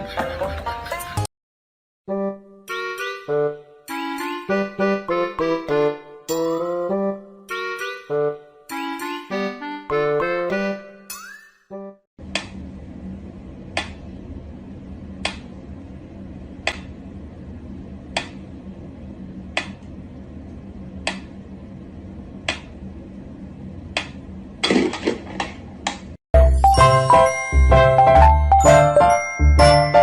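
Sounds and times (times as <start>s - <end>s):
steady low hum: 12.2s - 26.2s.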